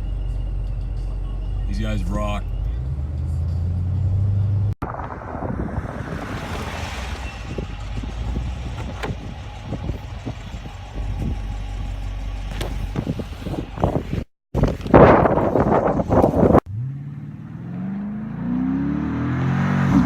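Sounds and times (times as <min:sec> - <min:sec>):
wind buffeting microphone: 0:04.8 - 0:16.6.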